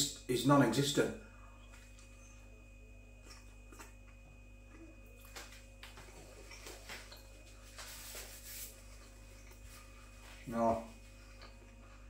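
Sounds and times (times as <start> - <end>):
low electrical hum: 0.0 - 12.0
person chewing: 1.6 - 8.0, 8.8 - 10.2, 11.0 - 12.0.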